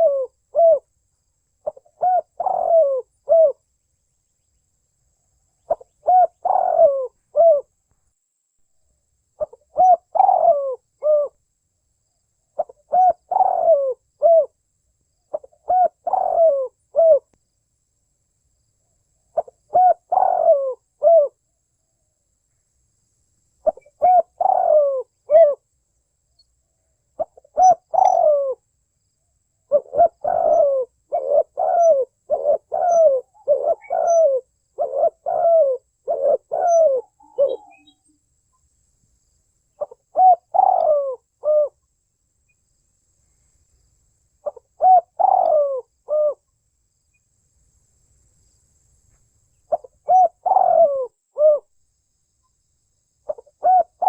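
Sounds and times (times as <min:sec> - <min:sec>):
dove cooing: 0:00.0 - 0:00.9, 0:01.6 - 0:03.6, 0:05.6 - 0:07.7, 0:09.4 - 0:11.4, 0:12.5 - 0:14.6, 0:15.3 - 0:17.3, 0:19.4 - 0:21.4, 0:23.6 - 0:25.6, 0:27.2 - 0:28.6, 0:29.7 - 0:38.1, 0:39.8 - 0:41.8, 0:44.4 - 0:46.4, 0:49.7 - 0:51.7, 0:53.3 - 0:54.0.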